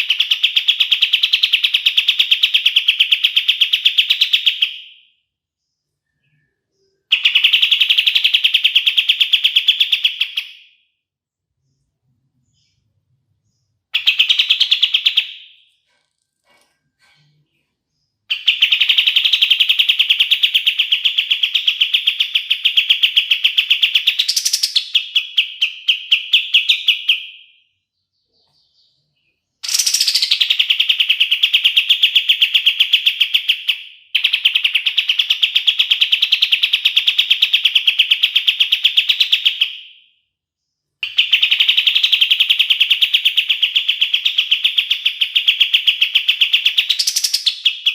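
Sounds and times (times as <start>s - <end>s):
bird singing rattling trills: 12.6s - 27.4s, 28.1s - 39.8s, 41.0s - 47.9s.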